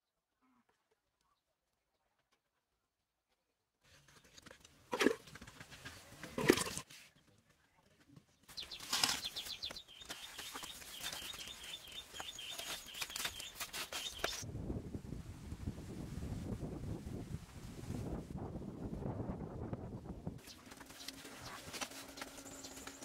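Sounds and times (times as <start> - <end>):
bird chirping: 8.5 - 14.4, 20.4 - 23.0.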